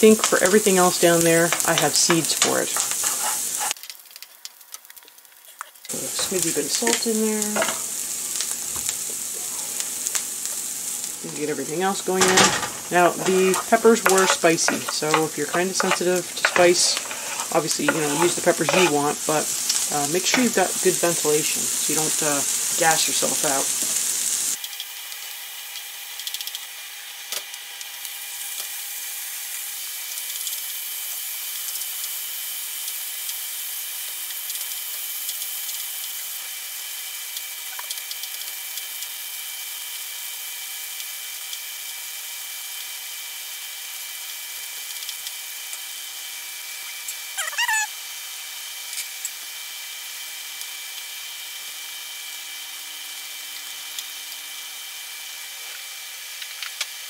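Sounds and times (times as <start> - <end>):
wooden spoon stirring: 0.0 - 3.8, 11.7 - 20.6
food sizzling in a wok: 0.0 - 57.0
wavering squeak: 47.4 - 47.9.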